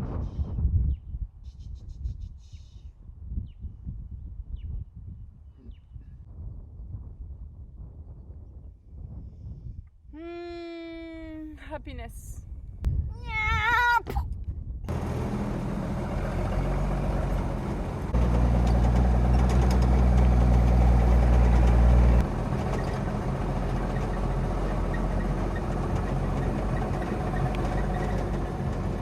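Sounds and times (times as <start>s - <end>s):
vehicle engine running: 14.9s - 29.0s.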